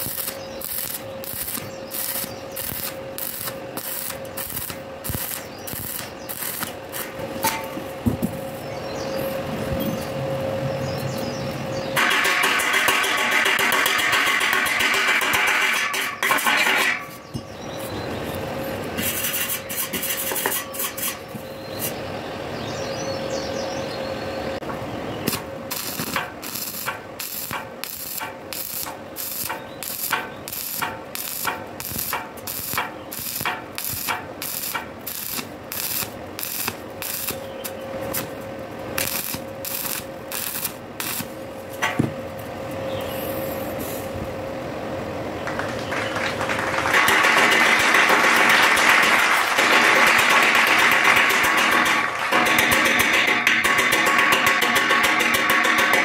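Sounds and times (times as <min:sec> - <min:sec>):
welding arc crackling: 0:00.0 - 0:07.8, 0:12.0 - 0:17.0, 0:19.0 - 0:21.2, 0:25.2 - 0:41.9, 0:46.8 - 0:56.0
steady hum: 0:00.0 - 0:45.7.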